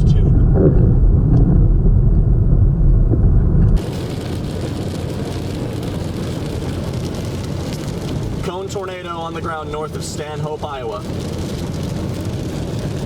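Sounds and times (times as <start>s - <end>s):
loud deep rumble: 0.0s - 10.2s.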